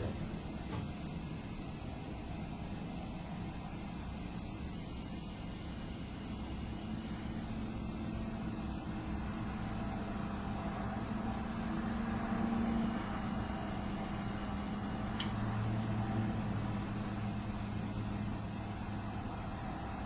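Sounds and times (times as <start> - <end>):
hard drive whine: 0.0 - 20.0
click: 15.1 - 16.0.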